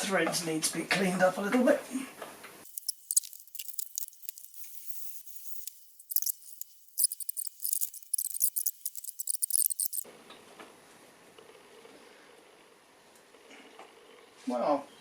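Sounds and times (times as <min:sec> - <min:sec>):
metallic scratching and clicking: 0:02.7 - 0:10.0.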